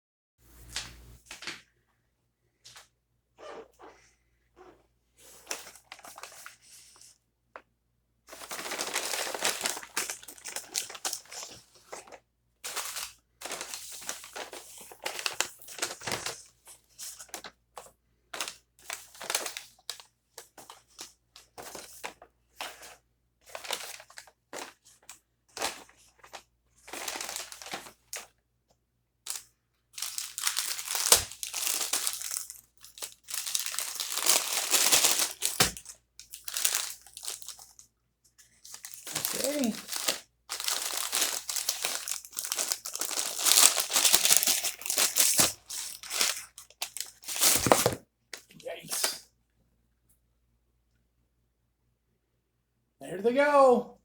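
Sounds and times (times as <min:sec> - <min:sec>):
food packaging crinkling and tearing: 0:08.3 - 0:17.6, 0:20.6 - 0:28.3, 0:29.3 - 0:48.0.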